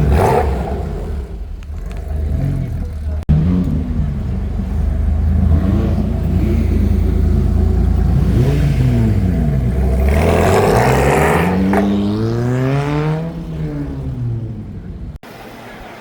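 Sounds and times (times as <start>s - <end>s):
car engine revving and accelerating: 0.0s - 15.2s
exhaust rush: 0.0s - 16.0s.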